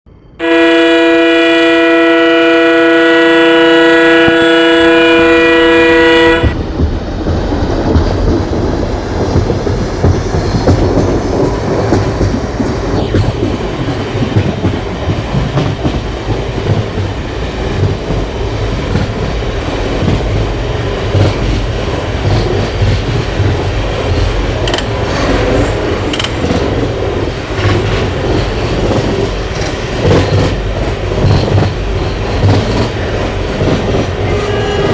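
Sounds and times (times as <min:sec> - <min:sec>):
train rumbling on track: 0:00.1 - 0:34.9
locomotive horn blast: 0:00.4 - 0:06.6, 0:34.1 - 0:34.9
train wheel clicks: 0:06.4 - 0:34.9.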